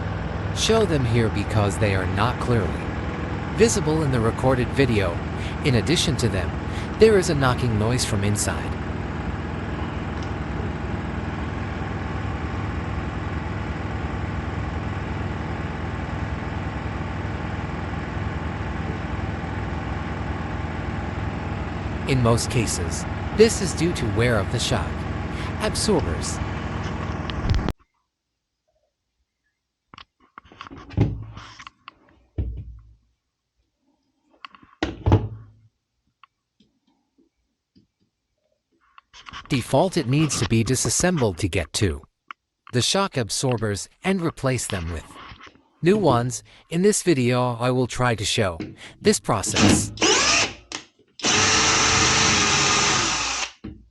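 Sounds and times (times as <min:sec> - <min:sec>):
hollow thuds on washing machine: 0:30.9 - 0:31.4, 0:32.4 - 0:32.9.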